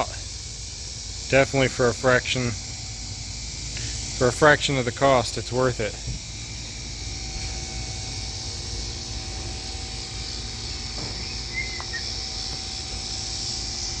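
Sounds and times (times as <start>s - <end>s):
insect chorus: 0.0s - 14.0s
short bird chirp: 11.2s - 12.1s.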